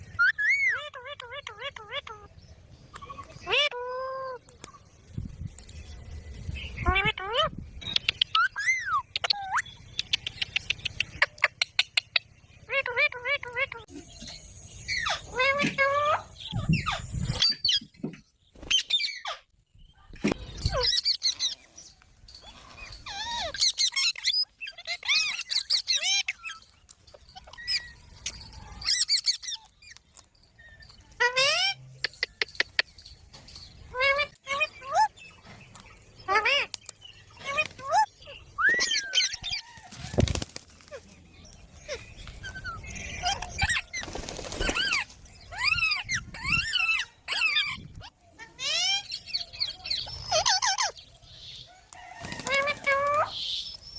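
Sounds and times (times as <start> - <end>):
parrot squeaking and chirping: 0.1 - 2.3, 2.9 - 4.4, 6.8 - 13.9, 14.9 - 18.0, 18.6 - 19.5, 20.4 - 21.7, 22.3 - 30.0, 30.8 - 35.2, 36.2 - 39.8, 41.8 - 51.0
parrot squawking: 0.2 - 2.3, 3.4 - 4.4.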